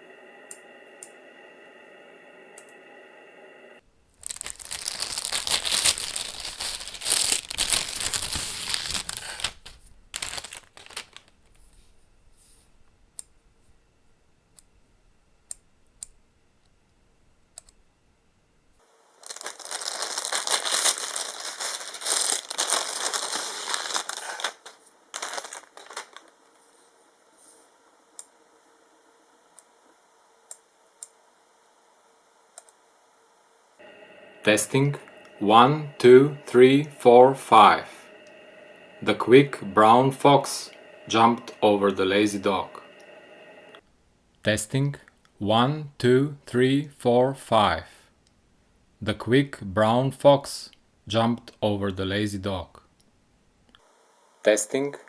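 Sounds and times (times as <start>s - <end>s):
crinkling rustling noise: 3.9s - 14.2s, 19.1s - 26.9s.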